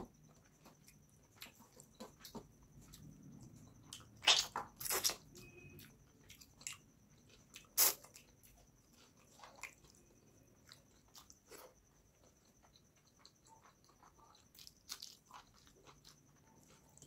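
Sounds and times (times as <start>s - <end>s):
wet mouth smacking and chewing: 3.9s - 5.5s.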